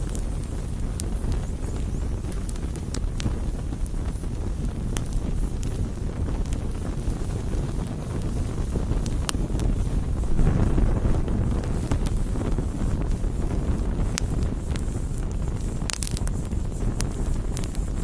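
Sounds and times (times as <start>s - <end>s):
campfire rushing: 0.0s - 18.0s
fire crackling and popping: 0.0s - 18.0s.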